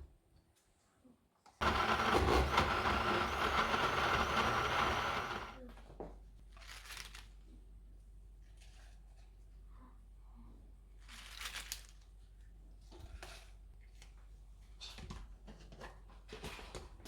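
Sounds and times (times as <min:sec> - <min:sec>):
blender motor whining and grinding: 0:01.6 - 0:05.6.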